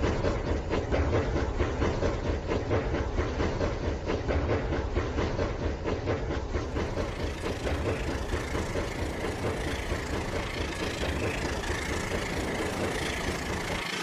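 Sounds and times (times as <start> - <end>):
toy train motor droning: 7.1 - 14.0.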